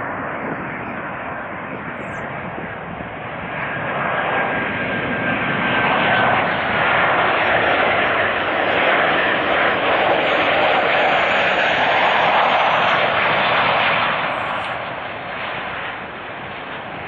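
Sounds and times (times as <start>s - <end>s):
jet airliner engine rush: 0.0s - 17.0s
faint high whine: 1.7s - 2.6s.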